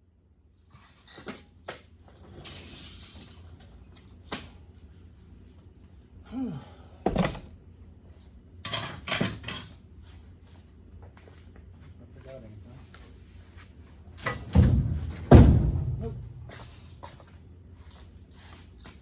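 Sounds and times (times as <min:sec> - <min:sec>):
metallic knocks and clanks: 0:14.2 - 0:16.8.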